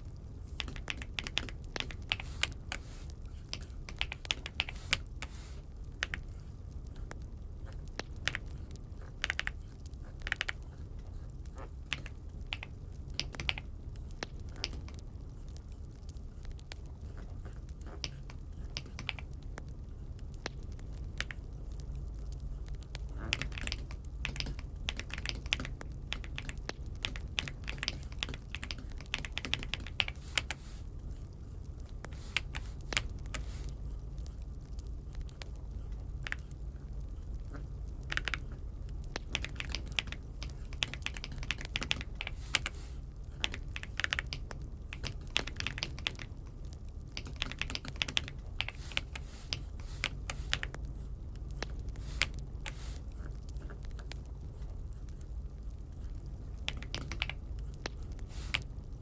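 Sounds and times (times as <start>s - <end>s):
steady low hum: 0.0s - 59.0s
mechanical keyboard typing: 0.5s - 2.8s, 3.5s - 5.2s, 7.9s - 10.8s, 11.9s - 15.0s, 17.9s - 19.4s, 23.1s - 30.6s, 38.0s - 38.5s, 39.1s - 50.8s, 56.6s - 58.7s.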